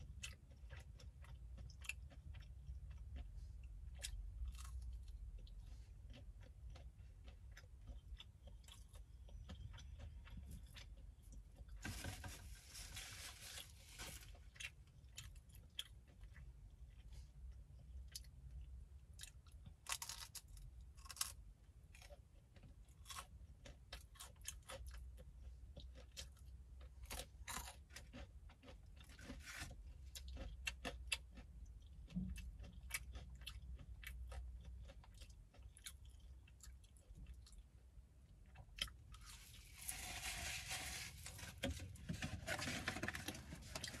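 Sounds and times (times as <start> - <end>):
person chewing crunchy food: 0.0 - 44.0.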